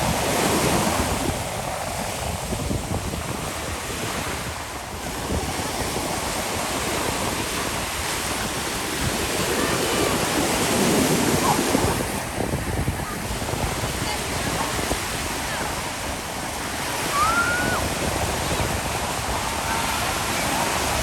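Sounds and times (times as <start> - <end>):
ocean surf washing ashore: 0.0 - 21.0
wind buffeting microphone: 0.0 - 21.0.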